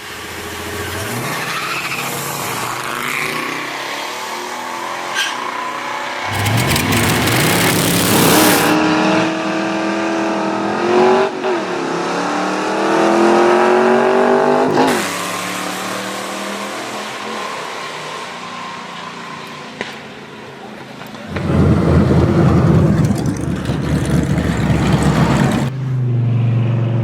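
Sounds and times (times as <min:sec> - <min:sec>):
car engines revving hard: 0:06.3 - 0:08.8, 0:21.3 - 0:25.7.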